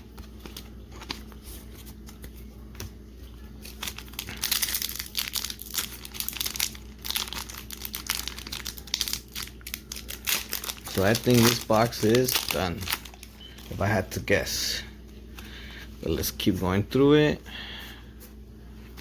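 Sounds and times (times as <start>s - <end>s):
foil wrapper crinkling: 3.4s - 14.2s.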